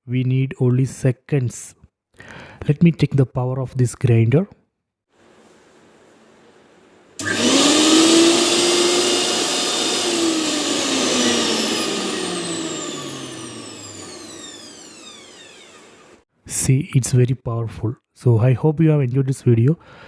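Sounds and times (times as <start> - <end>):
mixer grinder motor whine: 7.2 - 16.3.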